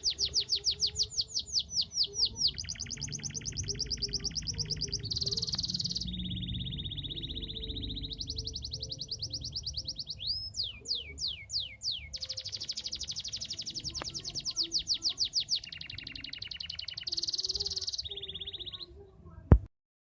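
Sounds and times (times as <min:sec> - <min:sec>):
canary singing trills: 0:00.0 - 0:19.4.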